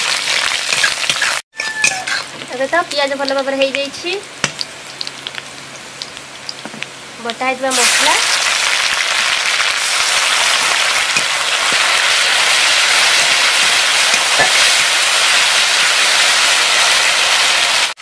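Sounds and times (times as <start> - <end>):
spice paste sizzling in hot oil: 0.0 - 18.0
steel spatula stirring: 9.8 - 15.4.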